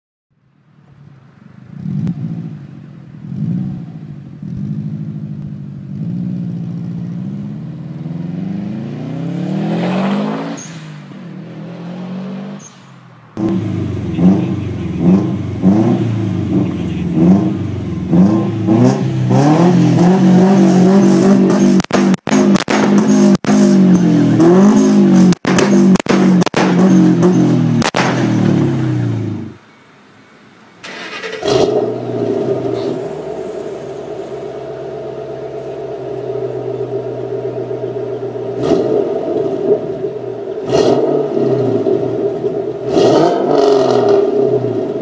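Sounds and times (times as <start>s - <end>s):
car engine revved in blips: 1.6s - 29.6s, 30.8s - 45.0s
car engine accelerating past: 6.0s - 21.7s, 30.8s - 45.0s
exhaust backfire pops: 21.0s - 28.7s.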